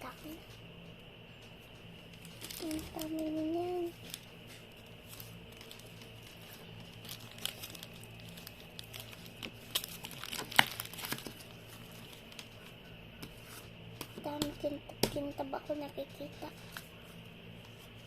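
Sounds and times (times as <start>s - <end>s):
sticky slime clicks and crackles: 7.0s - 11.4s.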